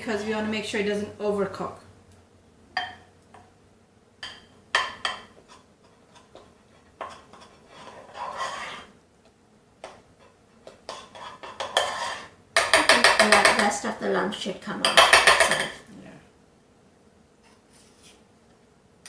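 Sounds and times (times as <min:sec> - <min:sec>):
spoon scraping against pot: 0:04.2 - 0:09.0, 0:09.8 - 0:13.7.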